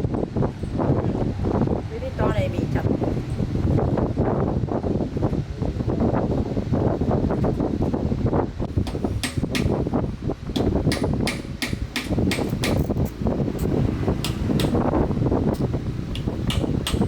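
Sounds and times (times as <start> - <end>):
low rumbling noise: 0.0 - 17.0
sharp knocks: 8.8 - 9.8, 10.6 - 12.9, 14.2 - 14.9, 15.6 - 17.0.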